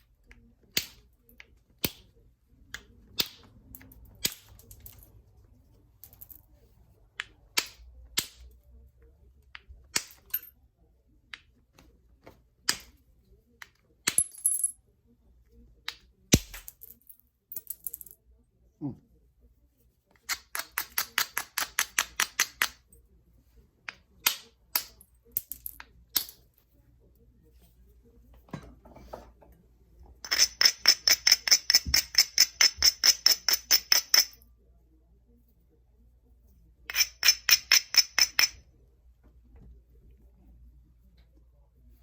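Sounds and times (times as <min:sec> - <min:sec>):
knapping tool clicking on stone: 0:00.3 - 0:02.1, 0:02.7 - 0:05.0, 0:20.2 - 0:22.9, 0:23.9 - 0:26.4, 0:30.2 - 0:34.4, 0:36.9 - 0:38.6.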